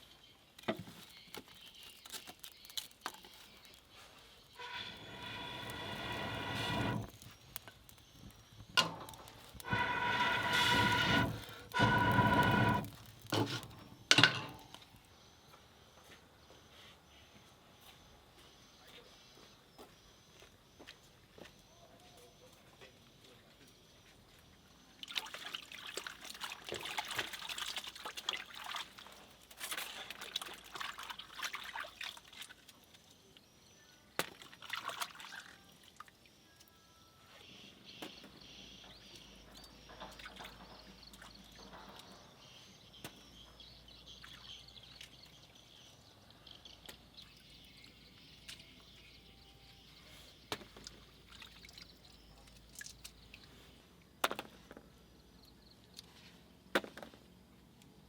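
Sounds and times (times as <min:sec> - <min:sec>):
water splashing and trickling: 0:25.0 - 0:32.9, 0:34.3 - 0:36.2, 0:50.5 - 0:53.6.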